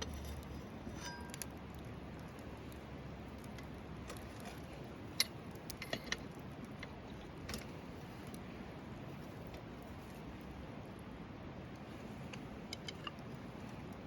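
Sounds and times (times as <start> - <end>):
campfire crackling and popping: 0.0 - 14.0
low steady background: 0.0 - 14.0.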